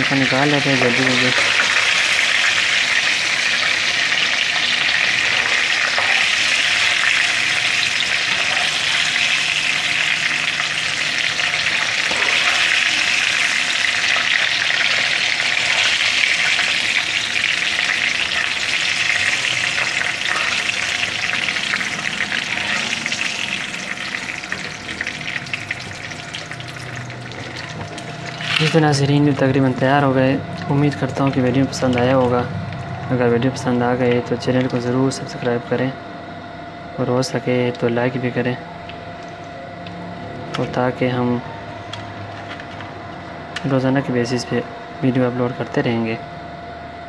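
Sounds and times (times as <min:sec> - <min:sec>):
chicken frying in hot oil: 0:00.0 - 0:29.2.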